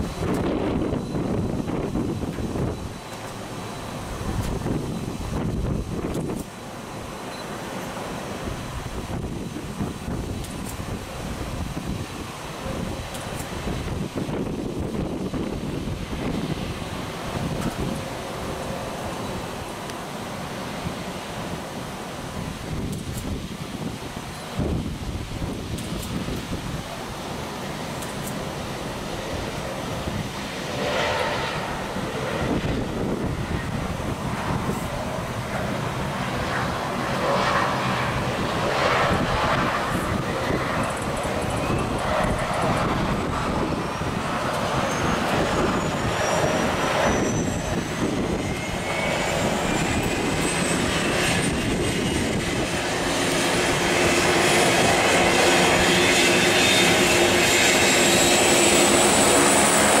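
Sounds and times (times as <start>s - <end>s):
jet engines running: 0.0s - 60.0s
turbine whine: 0.0s - 60.0s.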